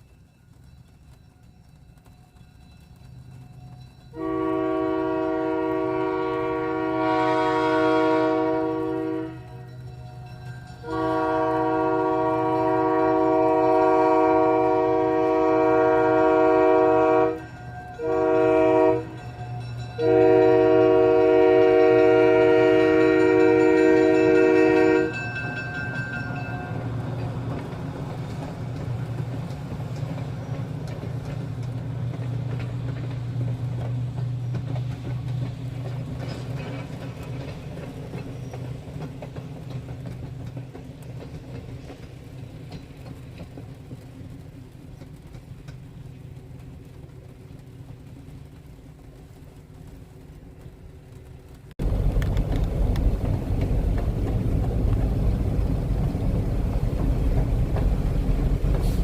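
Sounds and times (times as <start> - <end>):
train rumbling: 0.0 - 59.0
train horn chord: 4.1 - 9.7, 10.8 - 25.4.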